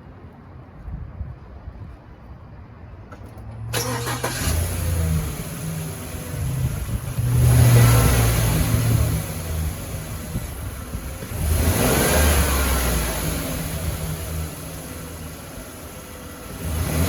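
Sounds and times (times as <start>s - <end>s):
van engine starter cranking: 3.6s - 10.6s
van engine running and revving: 3.6s - 17.0s.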